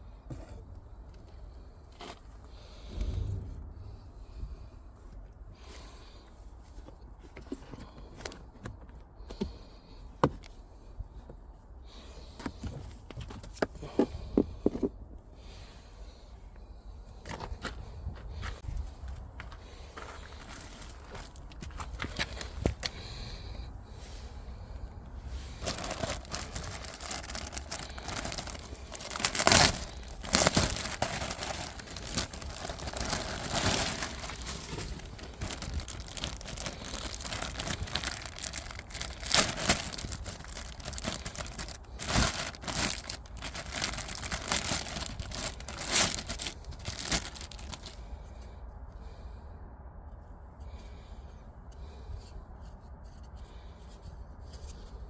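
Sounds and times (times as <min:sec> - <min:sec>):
crinkling plastic wrapping: 0:25.6 - 0:48.0.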